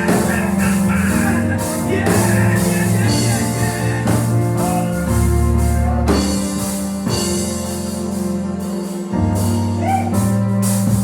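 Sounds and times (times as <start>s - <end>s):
person singing: 0.0s - 6.4s
organ playing gospel chords: 0.0s - 11.0s.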